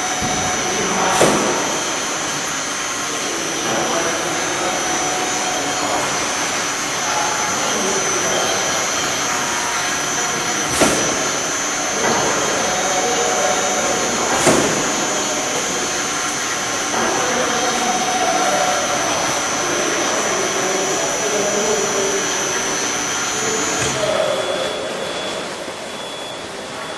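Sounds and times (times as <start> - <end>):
sawing machine whine: 0.0 - 26.9.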